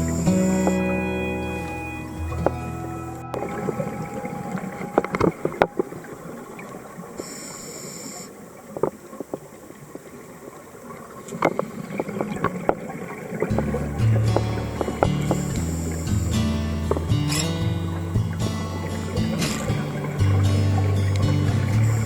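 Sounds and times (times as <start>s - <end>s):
high-pitched tone: 0.0s - 6.7s
underwater hiss: 3.4s - 8.6s, 14.8s - 16.7s.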